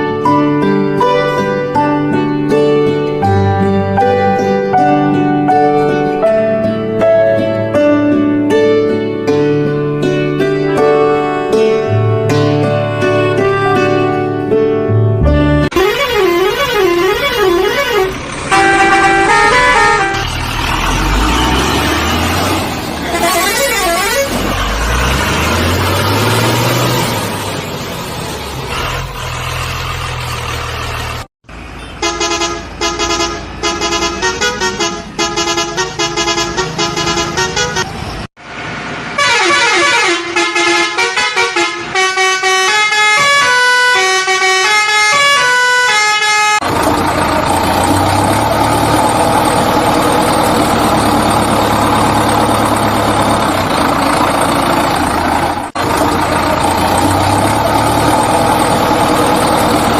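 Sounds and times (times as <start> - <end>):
multi-tone musical horn: 15.2 - 20.4, 23.0 - 24.4, 32.0 - 37.9, 39.2 - 46.6
vehicle engine running: 15.6 - 37.7, 46.6 - 59.9
heavy engine idling: 15.8 - 37.7, 46.6 - 59.9.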